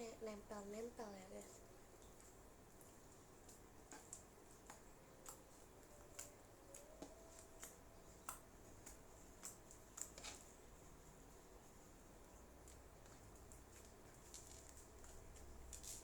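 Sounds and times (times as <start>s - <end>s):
slime kneaded sticky clicks: 3.4s - 10.5s.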